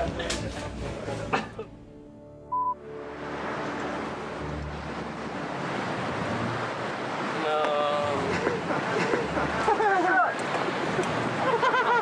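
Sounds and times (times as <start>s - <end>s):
wind: 0.0s - 12.0s
rushing water: 2.8s - 12.0s.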